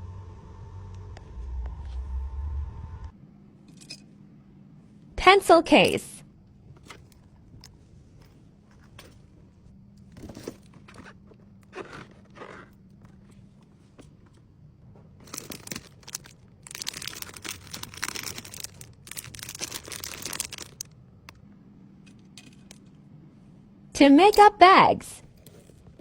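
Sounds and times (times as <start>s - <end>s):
plastic packaging crinkling: 15.2s - 20.9s.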